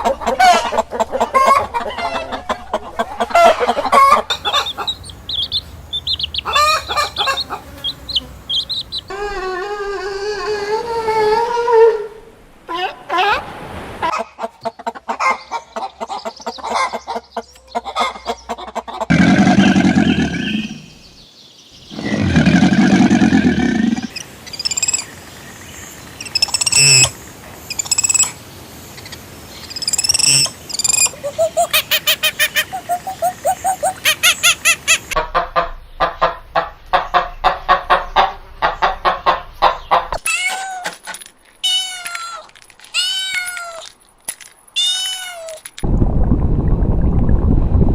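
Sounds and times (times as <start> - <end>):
long low animal calls: 0.0 - 13.4, 19.1 - 21.0, 21.9 - 24.2
high bird chirps: 4.3 - 9.1, 19.6 - 22.1, 29.0 - 35.1
rapid pulsed animal calls: 19.1 - 21.1
cat meows: 40.2 - 40.9, 41.6 - 42.4, 43.0 - 43.8, 44.8 - 45.6.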